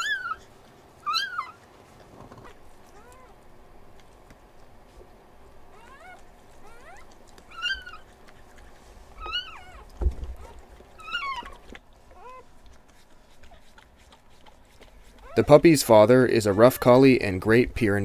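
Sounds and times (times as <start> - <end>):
puppies crying: 0.0 - 4.2, 5.4 - 17.4.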